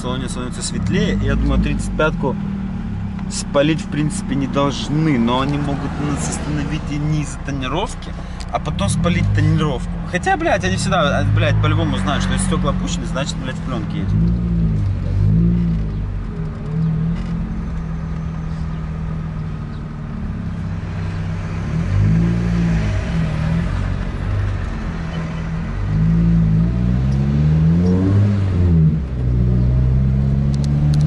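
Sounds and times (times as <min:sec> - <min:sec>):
car engine revving through gears: 0:08.7 - 0:10.0, 0:10.6 - 0:19.7, 0:20.4 - 0:31.0.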